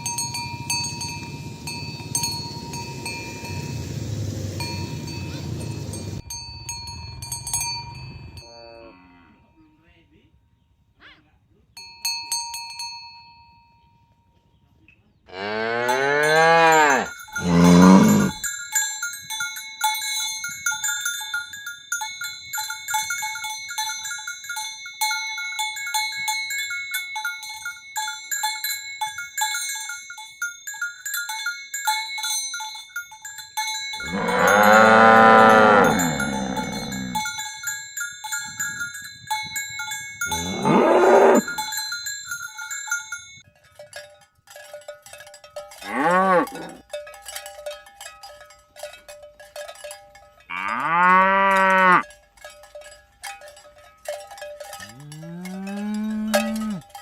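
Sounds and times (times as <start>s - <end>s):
cowbells clinking: 0.0s - 10.4s, 11.7s - 57.0s
cattle mooing: 15.3s - 18.4s, 34.0s - 37.2s, 40.3s - 41.5s, 45.9s - 46.8s, 50.5s - 52.0s, 54.9s - 56.8s.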